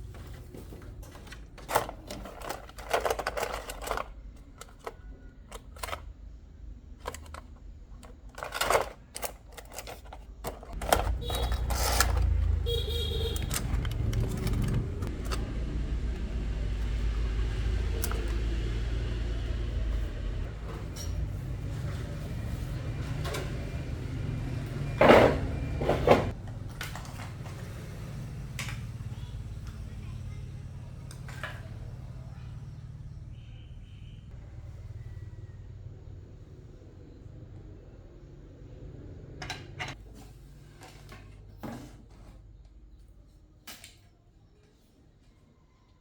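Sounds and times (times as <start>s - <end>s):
objects clunking: 0.0s - 6.2s, 6.9s - 27.8s.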